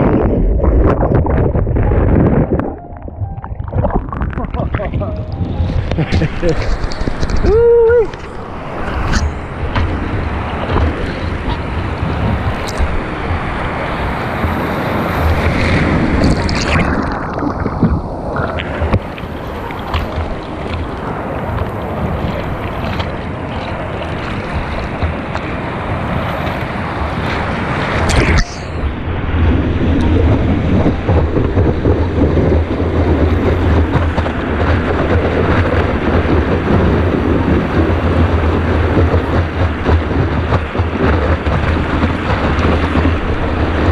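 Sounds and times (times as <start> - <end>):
wind buffeting microphone: 0.0 - 43.9
ocean surf washing onto beach: 1.3 - 43.9.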